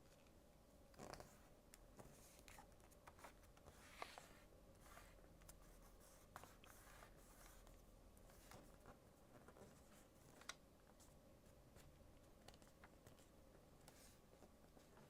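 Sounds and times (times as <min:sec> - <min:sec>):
paper rustling and crinkling: 0:01.0 - 0:05.2.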